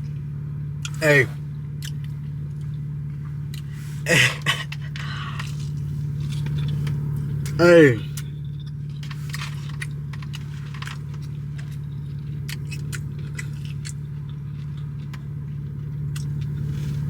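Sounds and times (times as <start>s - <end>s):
steady low hum: 0.0s - 17.0s
small clicks and rustles: 4.6s - 7.4s, 8.2s - 17.0s
person chewing food: 9.0s - 17.0s.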